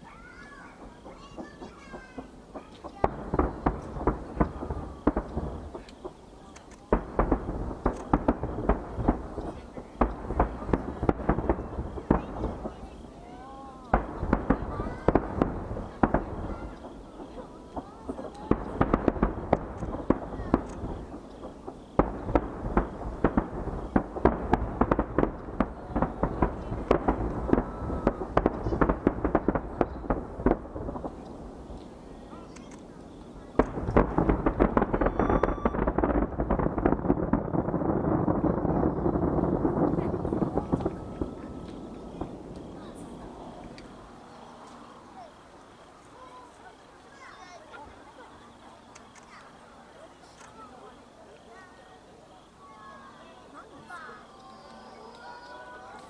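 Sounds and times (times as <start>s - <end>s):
fireworks bursting: 0.0s - 56.0s.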